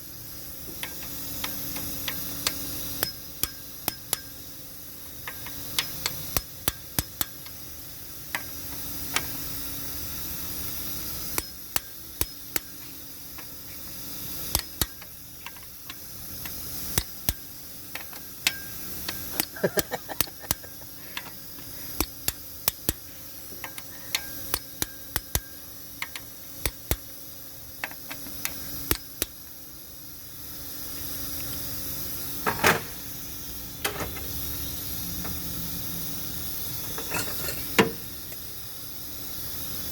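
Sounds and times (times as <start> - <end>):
tools clinking against metal: 36.9 - 38.0.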